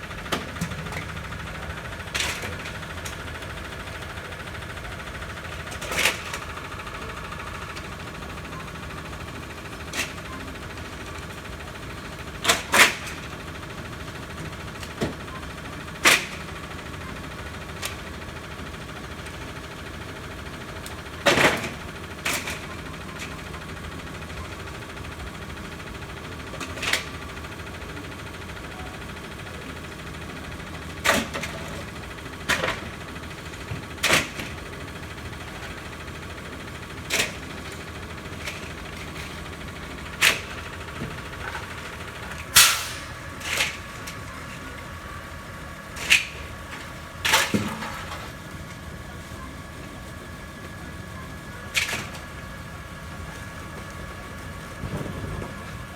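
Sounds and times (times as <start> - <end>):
garbage truck diesel engine idling: 0.0 - 55.9
bulky waste banging into hopper: 46.0 - 48.4.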